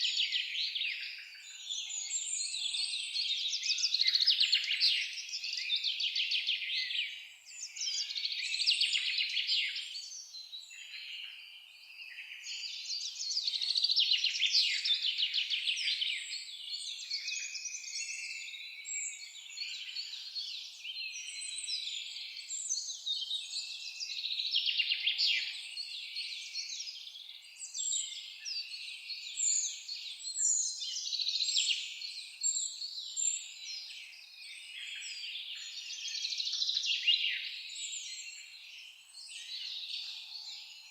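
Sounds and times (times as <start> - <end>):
songbirds chorus singing: 0.0 - 40.9.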